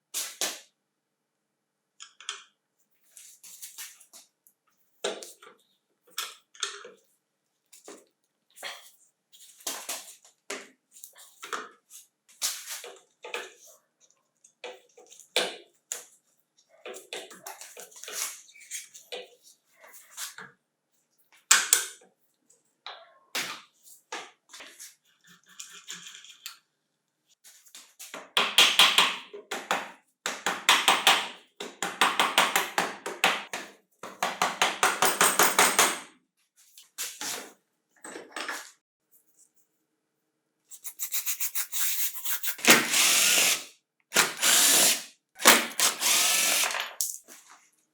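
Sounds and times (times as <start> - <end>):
power tool running: 42.6 - 46.8.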